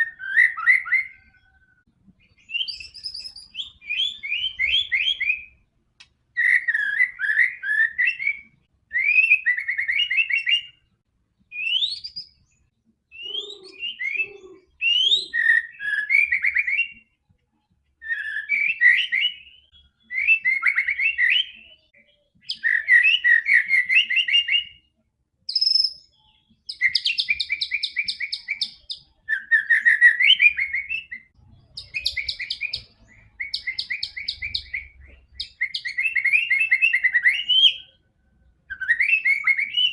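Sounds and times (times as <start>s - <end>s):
bird singing trills and whistles: 0.0s - 5.7s, 6.3s - 17.2s, 18.0s - 39.9s.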